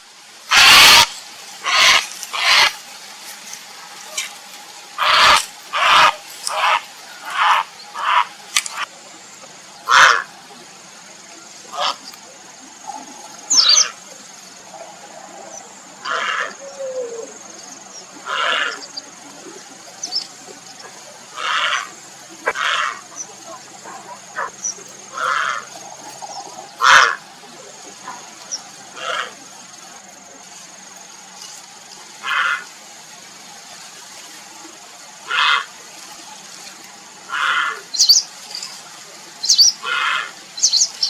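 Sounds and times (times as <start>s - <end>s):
heron croaking calls: 0.5s - 2.8s, 5.0s - 8.9s, 9.8s - 10.3s, 16.0s - 17.0s, 18.2s - 18.9s, 21.3s - 23.3s, 23.9s - 25.8s, 26.4s - 27.2s, 32.2s - 32.7s, 37.3s - 38.2s, 39.4s - 41.0s.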